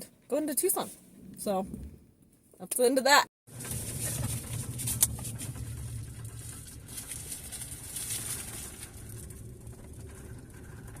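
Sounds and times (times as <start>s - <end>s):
vehicle cabin rumble: 3.5s - 11.0s.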